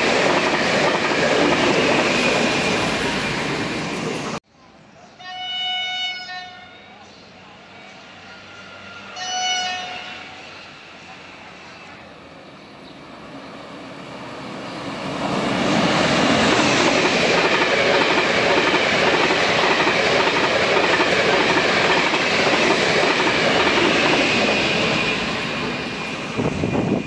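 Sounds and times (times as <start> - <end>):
train wheels rushing on rails: 0.0 - 4.4, 9.8 - 27.0.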